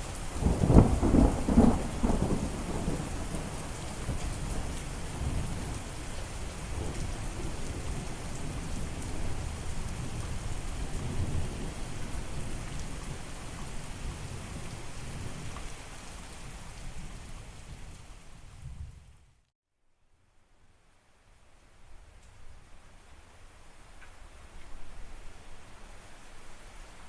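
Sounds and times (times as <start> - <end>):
steady rain hissing: 0.0 - 19.4, 20.1 - 27.0
rolling thunder rumble: 0.4 - 15.6.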